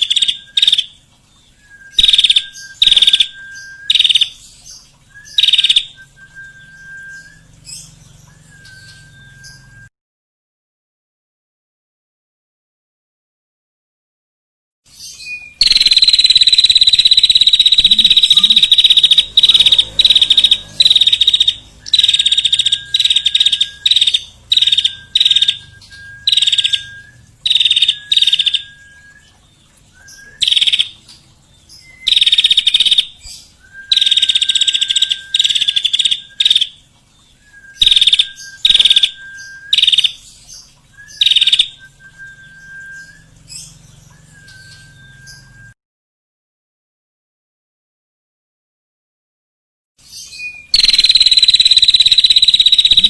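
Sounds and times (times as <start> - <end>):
low level bird whistle: 1.5 - 4.4, 5.1 - 9.9, 15.2 - 30.9, 31.8 - 36.7, 37.3 - 40.2, 40.9 - 45.8, 50.2 - 53.0
songbird rattling trills: 15.6 - 31.1, 31.7 - 36.8, 50.6 - 53.0.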